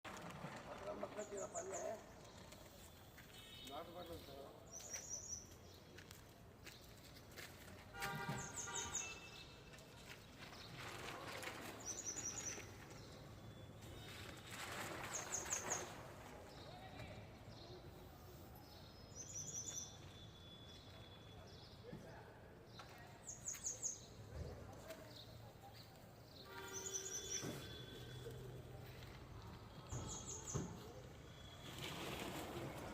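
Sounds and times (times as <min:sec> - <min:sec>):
faint outdoor background noise: 0:00.0 - 0:32.9
high bird chirps: 0:26.5 - 0:28.3.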